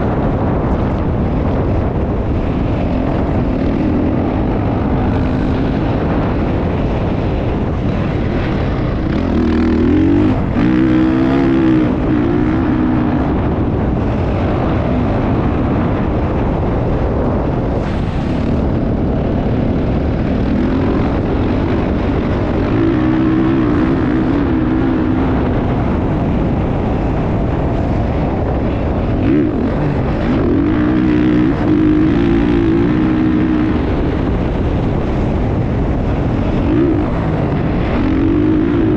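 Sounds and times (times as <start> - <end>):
motorcycle engines revving: 0.0 - 38.9
steady rush of noise: 0.0 - 38.9.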